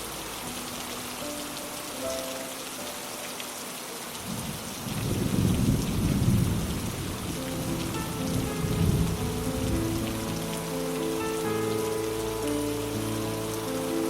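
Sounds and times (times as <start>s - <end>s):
rain hiss: 0.0s - 14.0s
thunder rumble: 4.2s - 11.2s.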